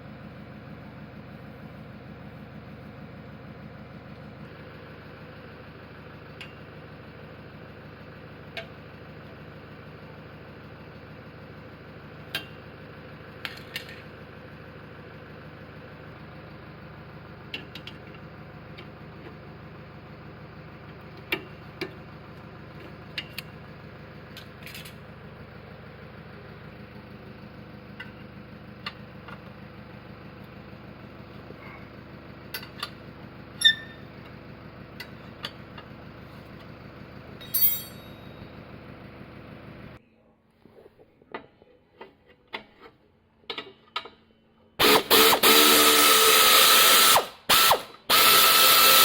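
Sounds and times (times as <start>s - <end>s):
car engine running: 0.0s - 40.0s.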